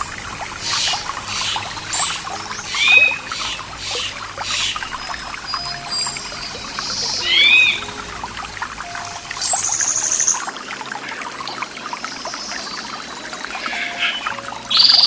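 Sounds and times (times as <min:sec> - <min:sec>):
bird chirps: 0:00.0 - 0:10.4
bird high trill: 0:00.0 - 0:10.5
stream trickling: 0:00.0 - 0:15.0.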